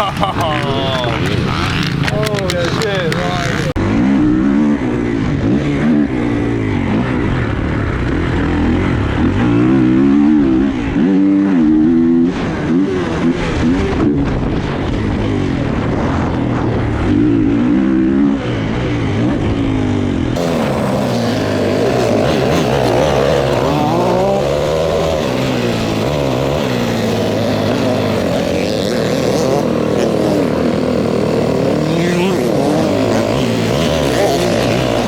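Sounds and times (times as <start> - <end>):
dirt bike engines revving: 0.0 - 35.0.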